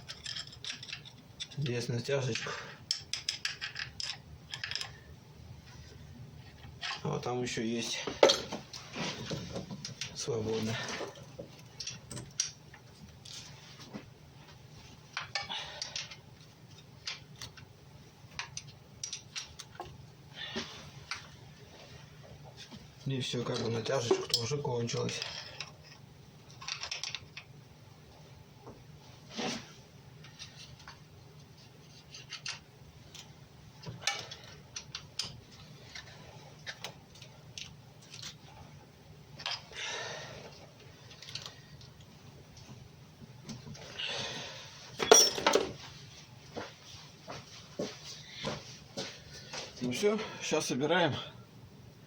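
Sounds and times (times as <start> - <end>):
metallic clicks and clinks of tools: 0.0 - 5.0.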